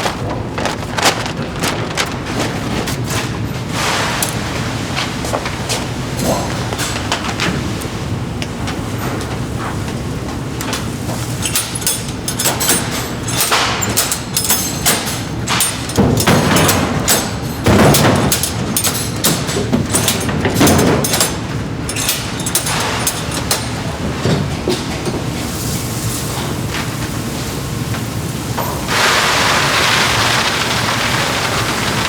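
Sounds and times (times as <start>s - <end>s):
production machinery running: 0.0s - 32.0s
clattering knocks: 11.1s - 25.3s.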